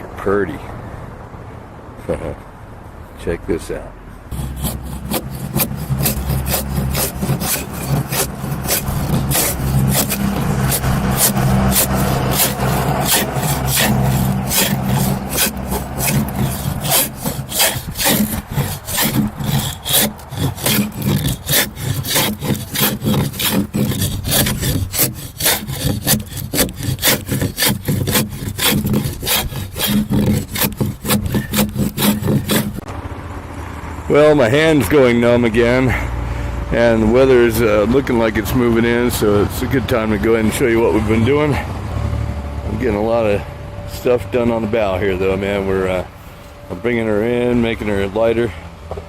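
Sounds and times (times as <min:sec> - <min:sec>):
steady low hum: 0:04.1 - 0:34.2
blade cutting strokes into wood: 0:04.3 - 0:32.9.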